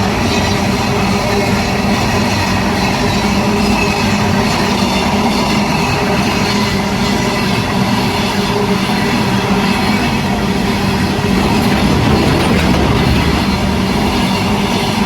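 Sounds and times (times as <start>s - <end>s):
train wheels rumbling: 10.1s - 15.0s
low hum: 10.6s - 15.0s.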